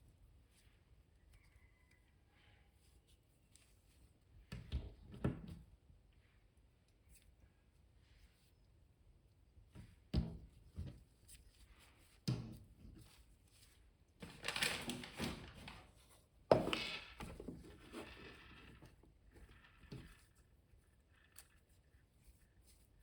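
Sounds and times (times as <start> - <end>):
packaging rustling and scraping: 14.2 - 20.4.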